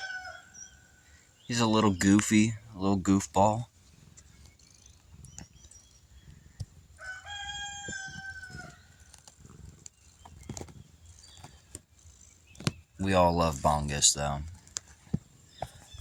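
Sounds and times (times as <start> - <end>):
rooster crowing: 0.0 - 1.0, 7.0 - 8.9.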